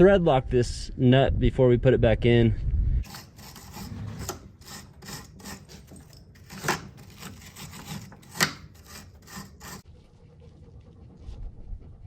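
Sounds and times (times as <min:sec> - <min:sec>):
back-and-forth scrubbing: 0:03.0 - 0:11.3.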